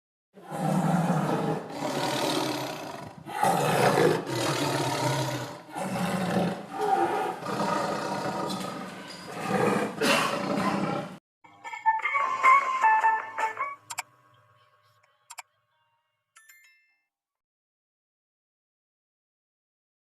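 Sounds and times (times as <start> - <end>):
lion roaring: 0.4 - 11.2.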